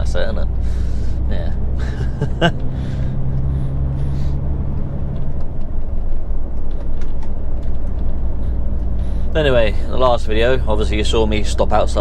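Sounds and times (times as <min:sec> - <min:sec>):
steady engine tone: 0:00.0 - 0:12.0
truck engine and road rumble: 0:00.0 - 0:12.0.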